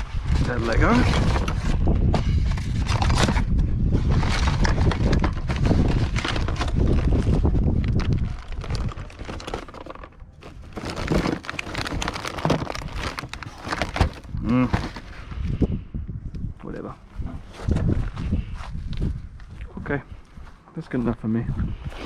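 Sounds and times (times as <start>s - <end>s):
handling noise on microphone: 0.0s - 15.3s, 17.1s - 21.1s
junk rustling and knocking: 0.2s - 15.2s.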